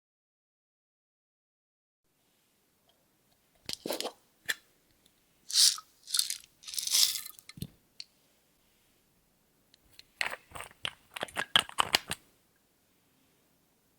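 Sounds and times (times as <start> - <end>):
crunching handling noises: 5.5 - 7.7.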